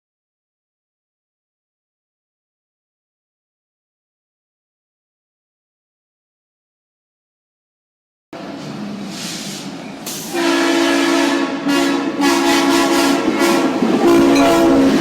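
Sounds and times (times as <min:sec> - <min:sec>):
train rumble: 0:08.4 - 0:15.0
locomotive air horn blasts: 0:10.3 - 0:15.0.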